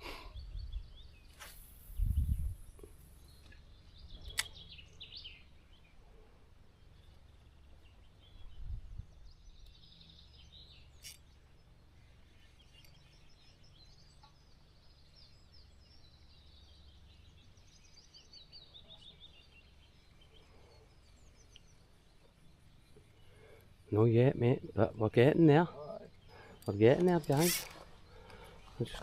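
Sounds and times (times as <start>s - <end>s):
small birds chirping: 0.0s - 29.0s
sharp click: 4.3s - 4.6s.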